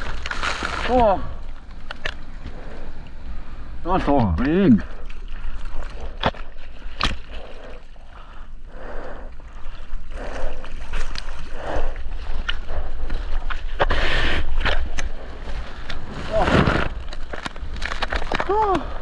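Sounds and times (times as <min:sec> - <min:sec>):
seawater sloshing and splashing: 0:00.0 - 0:01.2
low rumble of water: 0:00.0 - 0:13.8
wind: 0:00.0 - 0:19.0.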